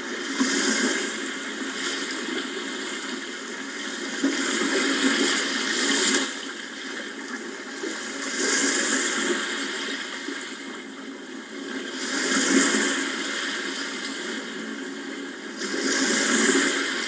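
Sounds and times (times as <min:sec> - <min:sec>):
sea waves surging: 0:15.4 - 0:17.0.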